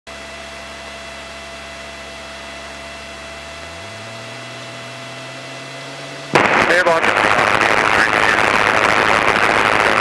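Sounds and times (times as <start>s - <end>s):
whining tones: 1.2s - 10.0s
low drone: 3.2s - 10.0s
intercom hiss and hum: 6.3s - 10.0s.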